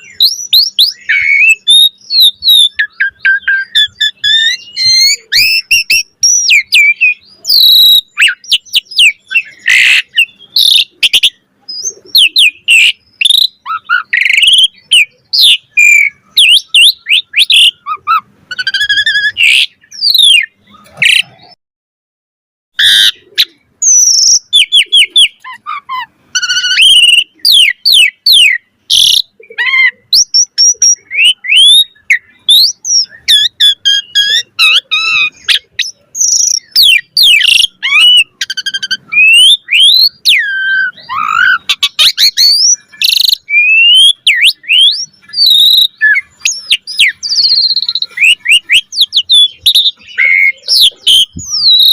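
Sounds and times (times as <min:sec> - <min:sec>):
starling singing: 0:00.0 - 0:21.6, 0:22.8 - 0:51.9.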